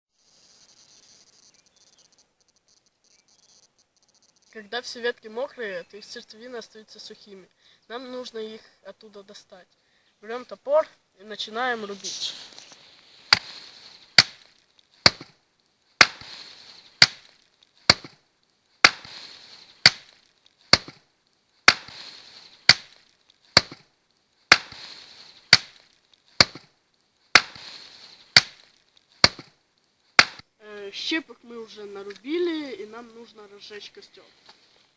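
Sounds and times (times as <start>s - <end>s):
axe chopping wet branches: 13.3s - 15.4s, 16.0s - 16.4s, 17.0s - 18.2s, 18.8s - 19.2s, 19.8s - 21.0s, 21.6s - 22.0s, 22.6s - 23.9s, 24.5s - 24.9s, 25.5s - 26.7s, 27.4s - 27.7s, 28.3s - 29.6s, 30.2s - 30.4s.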